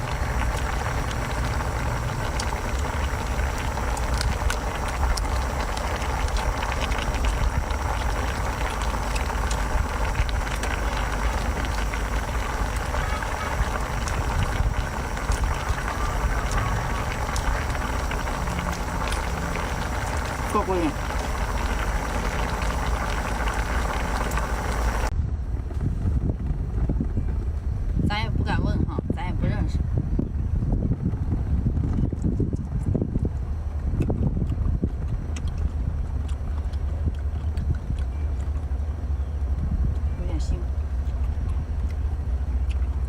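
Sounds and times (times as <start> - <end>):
steady low rumble: 0.0 - 43.0
crab shell cracking and crunching: 33.9 - 38.8.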